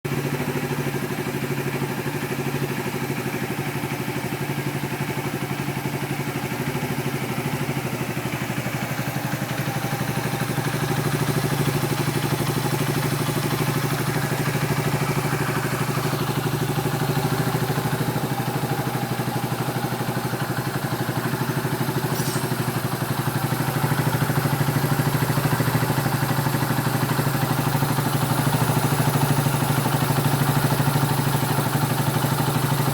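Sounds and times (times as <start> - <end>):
motorcycle engine idling: 0.1 - 32.9.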